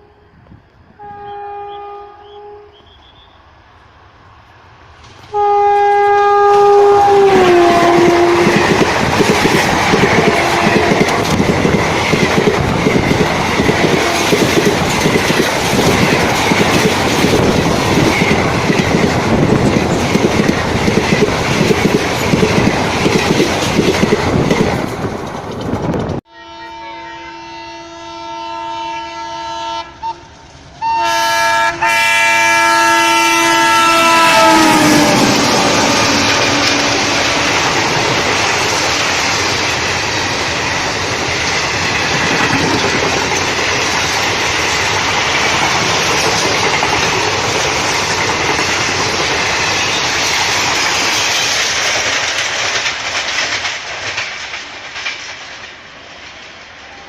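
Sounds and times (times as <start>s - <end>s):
train horn multi-tone chord: 1.0s - 2.9s, 5.3s - 8.8s, 26.3s - 37.6s
fast train rushing and clattering past: 3.4s - 26.3s, 29.9s - 57.0s.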